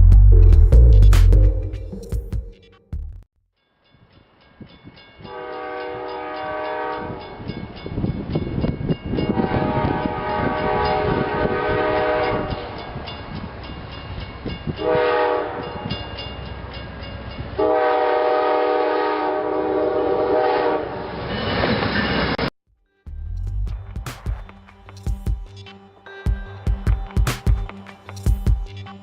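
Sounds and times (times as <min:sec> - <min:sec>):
moving train rumble and rail clicks: 0:04.1 - 0:22.5
train air horn blasts: 0:05.3 - 0:07.3, 0:09.3 - 0:12.8, 0:14.8 - 0:15.8, 0:17.6 - 0:21.1.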